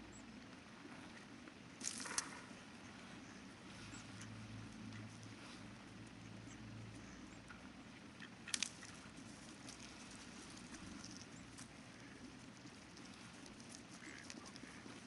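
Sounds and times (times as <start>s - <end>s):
small ticks: 1.8s - 2.4s, 8.2s - 15.0s.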